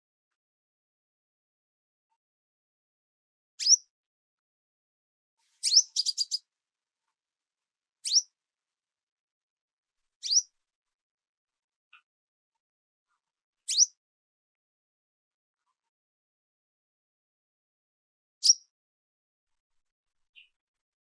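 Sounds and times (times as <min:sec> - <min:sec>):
small bird chirping: 0:03.6 - 0:03.8, 0:05.5 - 0:06.5, 0:08.0 - 0:08.3, 0:10.2 - 0:10.5, 0:13.7 - 0:14.0, 0:18.4 - 0:18.7, 0:20.3 - 0:20.6.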